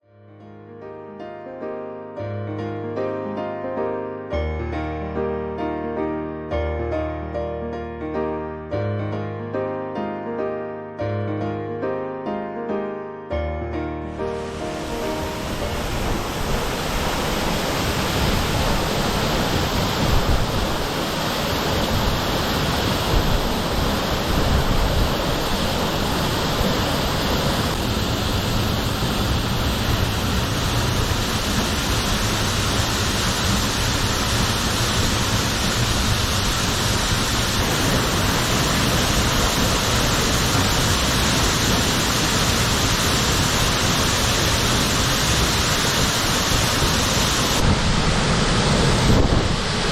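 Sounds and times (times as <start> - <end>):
waterfall rushing: 14.1 - 49.9.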